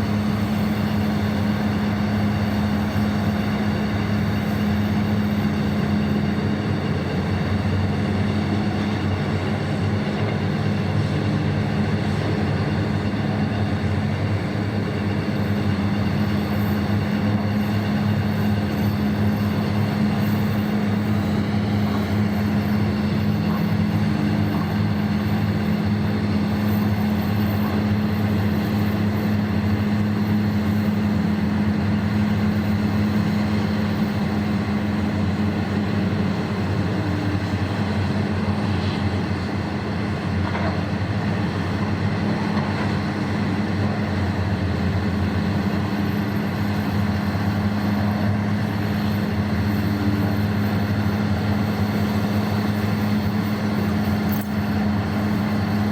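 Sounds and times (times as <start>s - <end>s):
heavy machinery engine hum: 0.0s - 55.9s.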